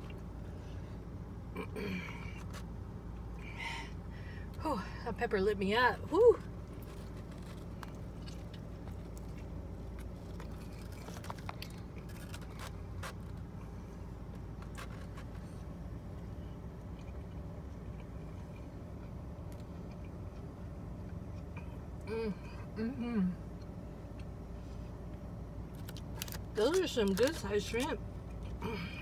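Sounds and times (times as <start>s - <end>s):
low hum: 0.0s - 29.0s
person chewing crunchy food: 6.6s - 21.6s, 25.7s - 26.5s.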